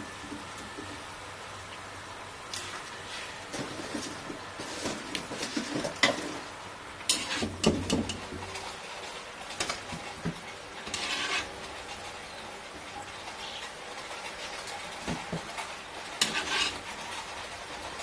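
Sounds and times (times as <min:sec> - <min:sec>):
scraping or stirring: 0:02.6 - 0:18.0
utensils and dishes clinking: 0:13.3 - 0:17.2.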